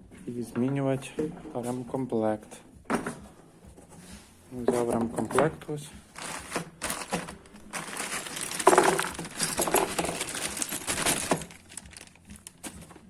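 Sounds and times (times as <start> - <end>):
rustling: 6.1 - 13.0
small metal parts clinking: 6.2 - 12.7.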